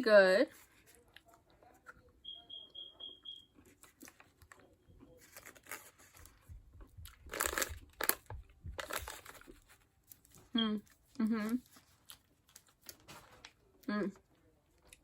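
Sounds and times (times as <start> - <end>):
short high beeps: 2.2 - 3.5
plastic wrapper crinkling: 7.1 - 10.4, 11.6 - 13.7.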